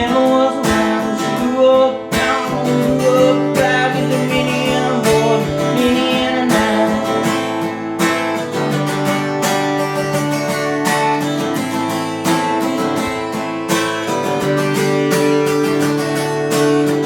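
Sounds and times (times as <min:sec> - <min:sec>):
person singing: 0:00.0 - 0:08.0
acoustic guitar strumming: 0:00.0 - 0:17.0.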